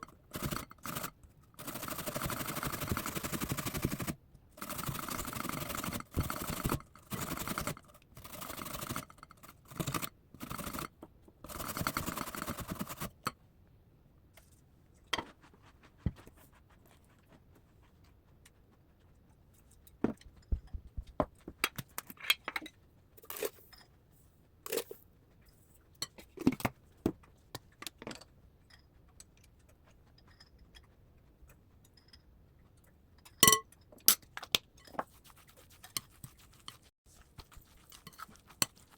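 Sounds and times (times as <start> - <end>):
food preparation scraping and rustling: 14.4 - 18.2, 34.8 - 38.9.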